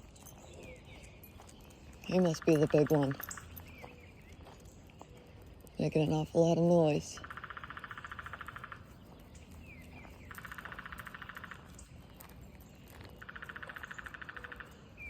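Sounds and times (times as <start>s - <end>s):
woodpecker drumming: 2.0s - 4.2s, 6.9s - 11.9s, 13.1s - 15.0s.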